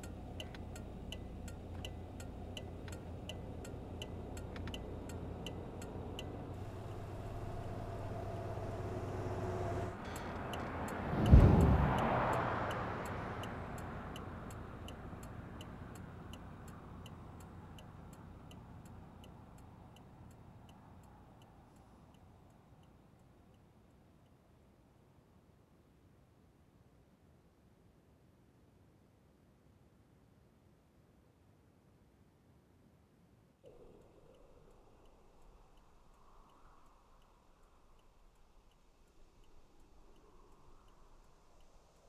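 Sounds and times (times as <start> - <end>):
car engine hum: 0.0 - 22.1
regular ticking: 0.0 - 23.6
loud low ringing boom: 11.1 - 13.0.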